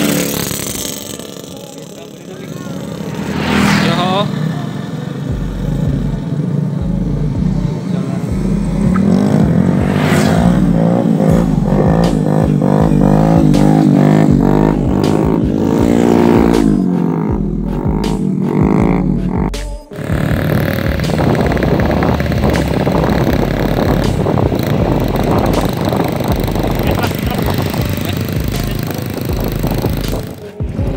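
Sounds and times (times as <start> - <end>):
motorcycle engine revving: 0.0 - 30.9
wind rumble on microphone: 20.1 - 30.9.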